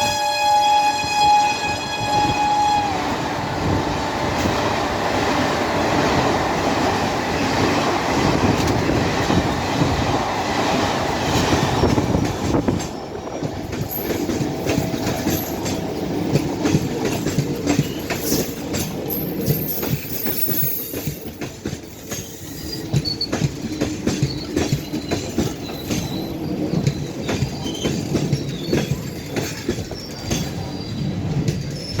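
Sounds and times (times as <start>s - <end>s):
train wheel squeals: 0.0s - 3.0s, 11.3s - 32.0s
train wheels clattering: 0.0s - 32.0s.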